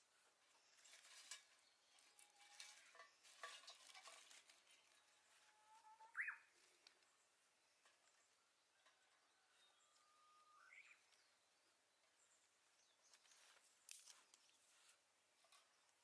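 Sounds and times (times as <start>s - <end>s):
handling clicks and rustles: 0.8s - 5.0s, 13.1s - 15.7s.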